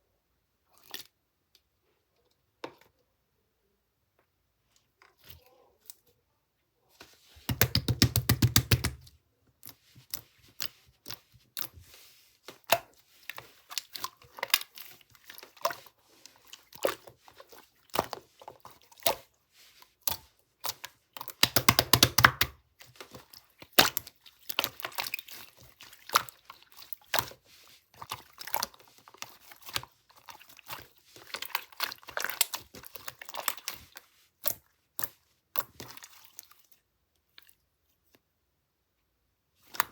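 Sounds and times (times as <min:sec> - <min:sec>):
crinkling and tapping handling: 0:07.0 - 0:36.1.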